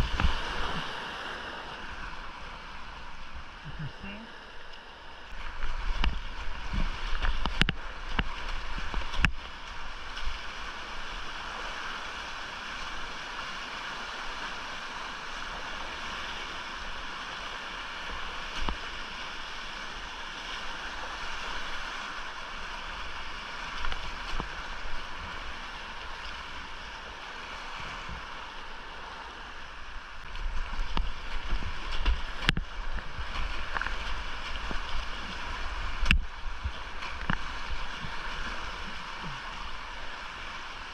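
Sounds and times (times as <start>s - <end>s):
creek water rushing: 0.0s - 40.9s.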